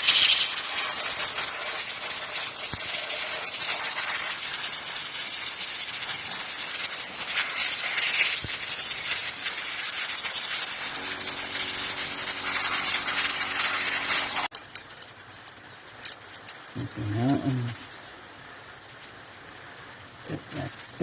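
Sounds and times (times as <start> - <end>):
loud hissing: 0.0 - 14.5.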